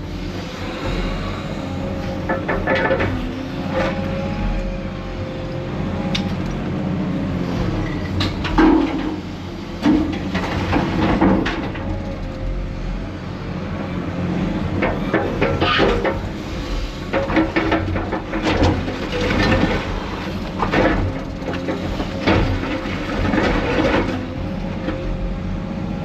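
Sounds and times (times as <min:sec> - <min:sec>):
excavator diesel engine running: 0:00.0 - 0:26.0
concrete rubble clattering: 0:02.2 - 0:03.4, 0:07.6 - 0:12.6, 0:14.6 - 0:25.0.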